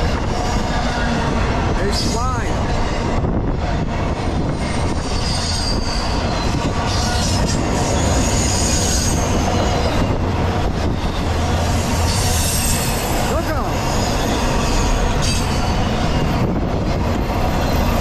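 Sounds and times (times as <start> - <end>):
clickety-clack over rail joints: 0.0 - 18.0
freight train wheels rumbling: 0.0 - 18.0
high wheel squeal: 4.6 - 10.2, 10.8 - 16.5.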